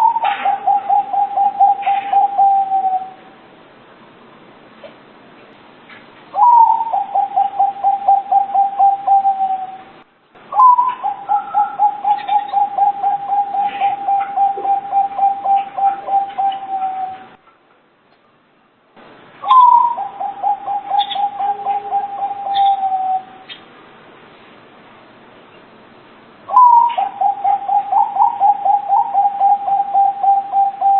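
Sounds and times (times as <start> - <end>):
dove cooing: 0.0 - 3.2, 6.4 - 9.9, 10.6 - 17.4, 19.4 - 23.5, 26.5 - 30.9.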